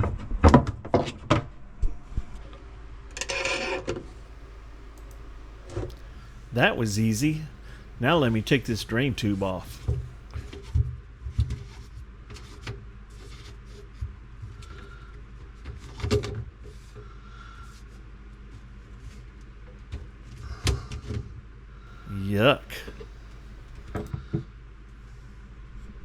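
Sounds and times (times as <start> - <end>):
steady low hum: 4.4 - 10.4.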